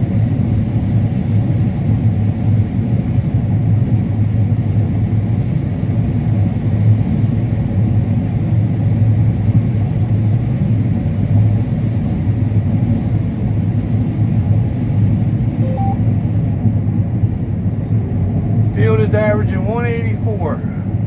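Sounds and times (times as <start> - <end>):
combine harvester droning: 14.6 - 16.6.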